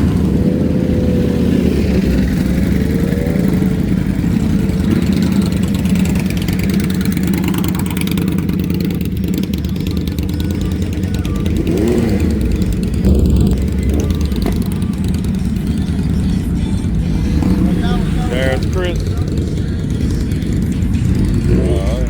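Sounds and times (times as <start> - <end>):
vehicle engines rumbling: 0.0 - 22.0.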